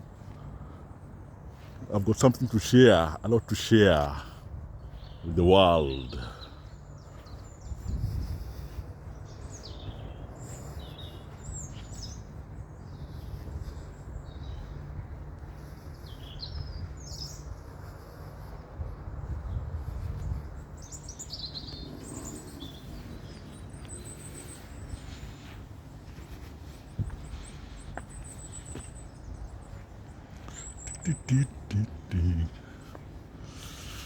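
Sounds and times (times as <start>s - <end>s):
songbirds chirping: 0.0s - 34.0s
steady low rumble: 12.2s - 34.0s.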